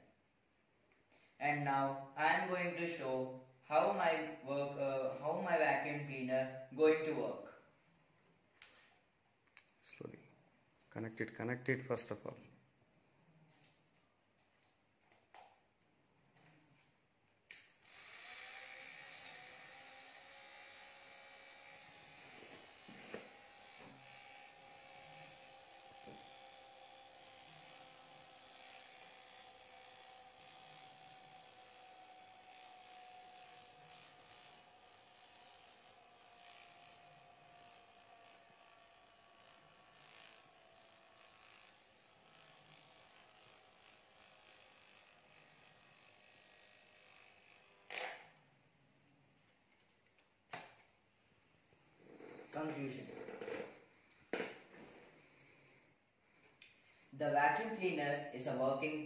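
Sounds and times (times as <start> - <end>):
small motor whine: 17.7 - 48.6.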